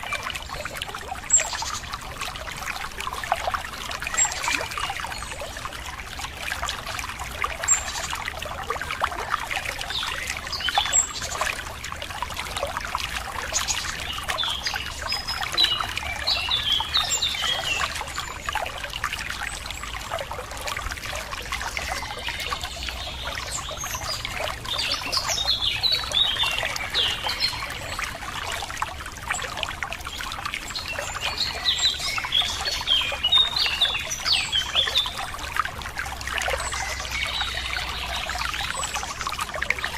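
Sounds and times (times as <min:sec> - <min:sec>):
water trickling and splashing: 0:00.0 - 0:39.9
small birds chirping: 0:21.7 - 0:28.5.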